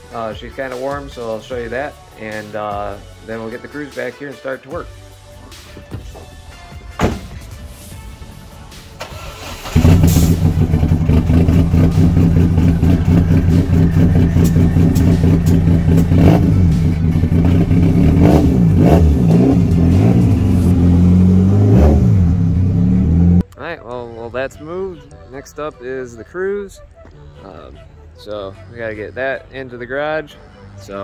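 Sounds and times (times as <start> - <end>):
sharp knock: 7.0 - 7.4
car engine starting and idling: 7.0 - 23.5.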